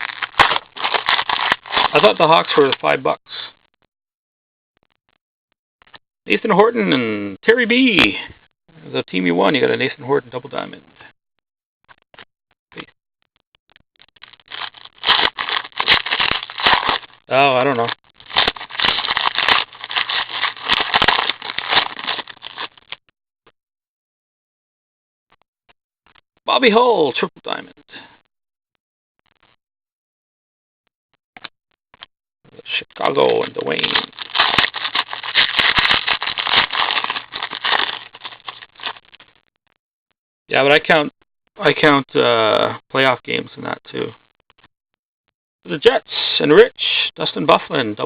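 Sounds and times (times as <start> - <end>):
trading cards being handled: 0.0 - 2.9, 14.5 - 22.7, 33.7 - 39.1.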